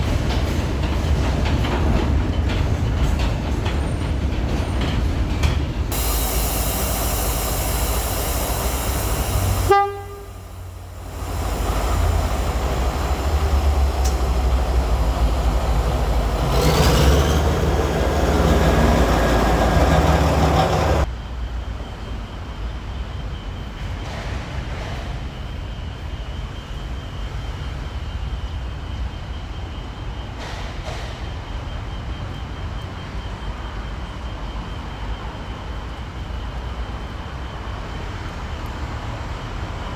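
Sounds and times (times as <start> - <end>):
locomotive engine rumbling: 0.0 - 21.1
locomotive horn: 7.6 - 13.0.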